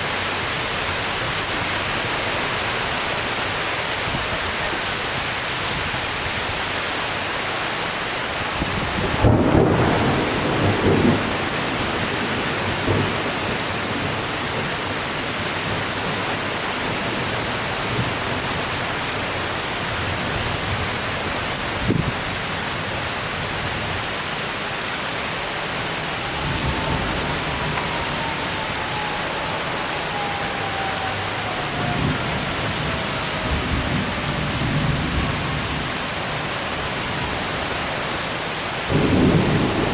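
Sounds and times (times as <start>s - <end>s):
heavy rain: 0.0s - 39.9s
thunder rumbling: 8.4s - 16.3s, 25.4s - 37.8s, 38.9s - 39.9s.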